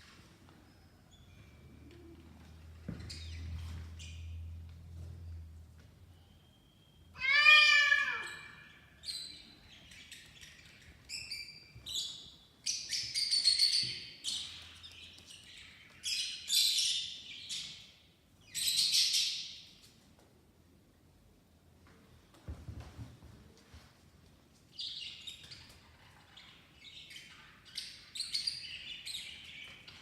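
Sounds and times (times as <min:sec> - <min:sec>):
cat meowing: 0:07.2 - 0:08.6.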